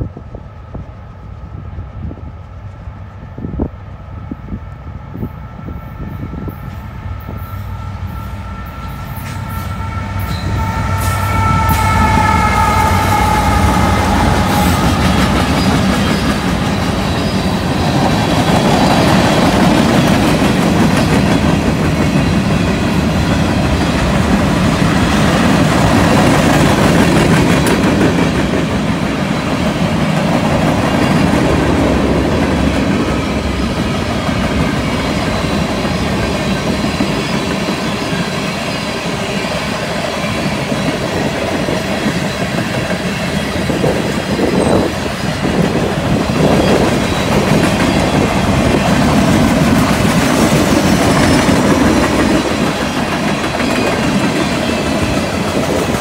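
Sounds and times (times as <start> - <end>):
locomotive engines: 6.7 - 56.0
train horn chord: 7.2 - 15.6
train wheel clatter: 12.8 - 56.0.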